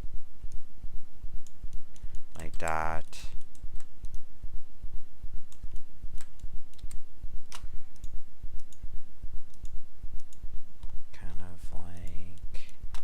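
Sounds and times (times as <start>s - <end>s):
low pulsing rumble: 3.6s - 13.0s
mouse and keyboard clicks: 12.0s - 13.0s.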